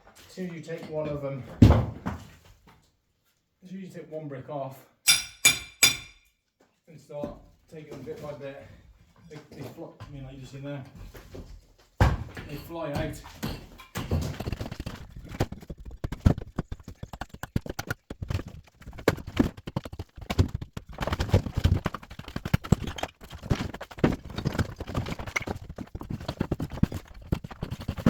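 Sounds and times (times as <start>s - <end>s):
bricks knocking and clattering: 12.0s - 28.0s.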